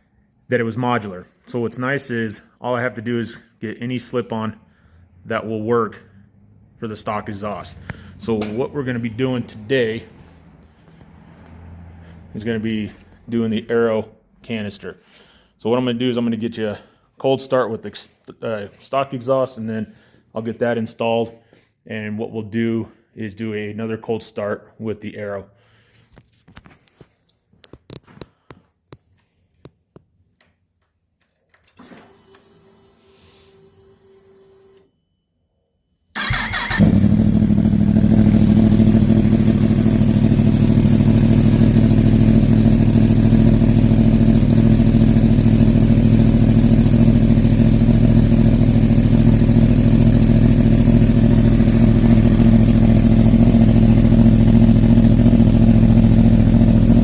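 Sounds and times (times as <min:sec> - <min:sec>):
motorcycle engine cranking: 0:36.2 - 0:39.2
motorcycle engine idling loudly: 0:36.4 - 0:57.0
low hum: 0:51.0 - 0:57.0.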